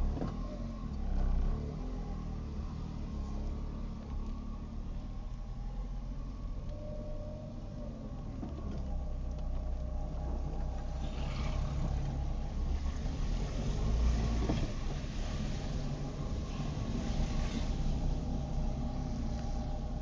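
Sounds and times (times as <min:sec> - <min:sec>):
car engine and road rumble: 0:00.0 - 0:20.0
wet road hiss: 0:10.9 - 0:20.0.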